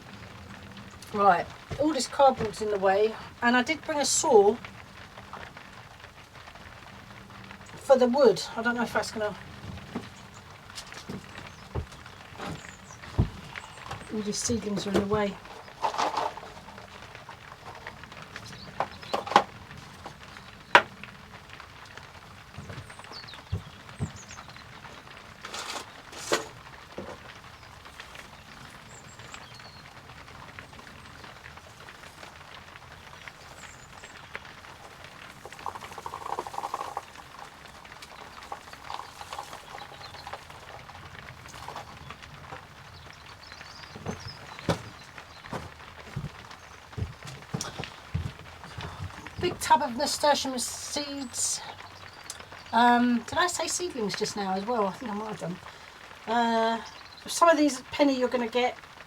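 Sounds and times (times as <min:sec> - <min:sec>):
objects knocking and clattering: 0:09.7 - 0:21.2, 0:21.8 - 0:28.4, 0:34.4 - 0:42.8, 0:43.6 - 0:49.8
light knocks of objects: 0:43.5 - 0:49.7.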